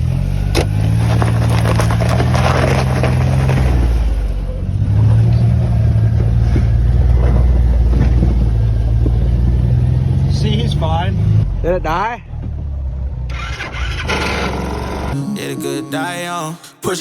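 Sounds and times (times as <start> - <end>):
small gas engine revving: 13.2 - 15.2.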